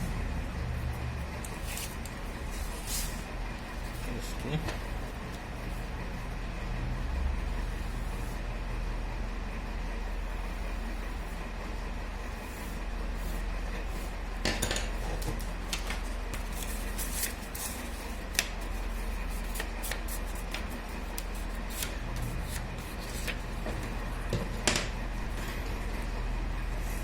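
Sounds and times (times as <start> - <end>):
low mains hum: 0.0 - 27.0
paper rubbing and rustling: 0.8 - 4.3, 15.0 - 24.1.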